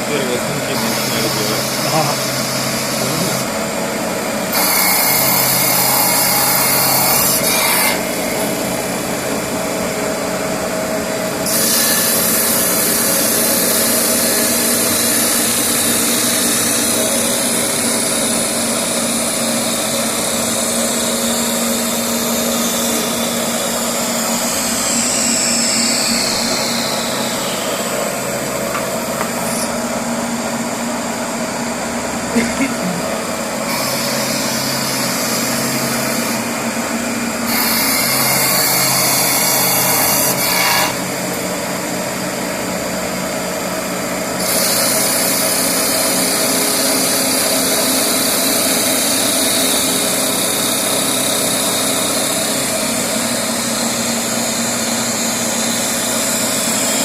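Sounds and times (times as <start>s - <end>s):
cnc motor hum: 0.0s - 57.0s
hissing wood cutting: 0.0s - 57.0s
falling motor whines: 11.4s - 31.0s.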